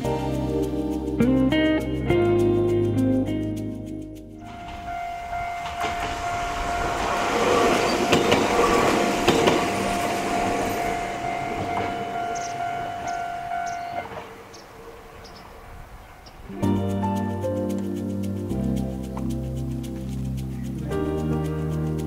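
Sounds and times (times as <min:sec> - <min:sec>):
steady high tone: 0:04.4 - 0:15.1
wheel clicks over rail joints: 0:04.4 - 0:16.4
train running noise: 0:04.4 - 0:20.6.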